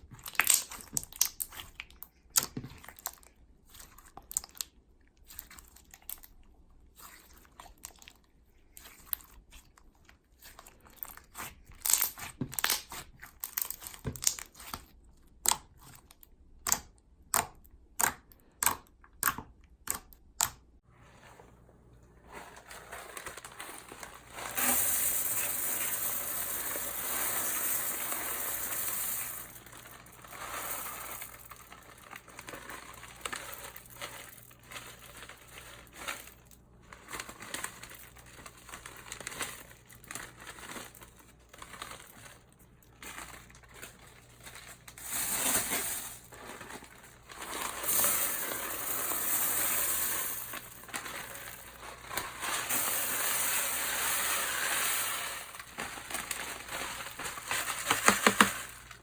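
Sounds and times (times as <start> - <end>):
slime popping and squishing: 0.0 - 6.3, 10.4 - 20.6.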